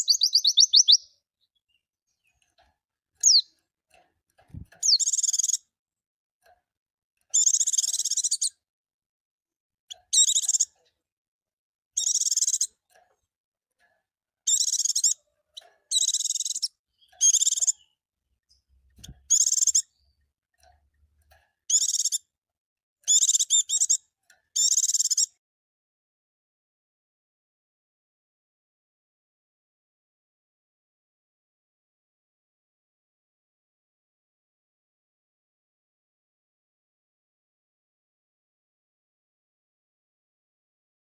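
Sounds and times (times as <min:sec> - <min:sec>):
bird twittering: 0:00.0 - 0:01.2, 0:03.2 - 0:03.5, 0:04.8 - 0:05.6, 0:07.4 - 0:08.5, 0:09.9 - 0:10.8, 0:12.0 - 0:12.7, 0:14.5 - 0:17.9, 0:19.0 - 0:20.1, 0:21.7 - 0:22.2, 0:23.1 - 0:24.0, 0:24.6 - 0:25.3.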